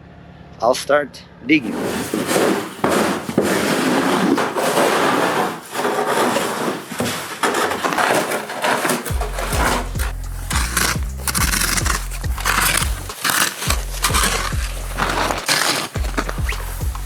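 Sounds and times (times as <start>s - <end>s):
shovel scraping snow: 1.6s - 17.0s.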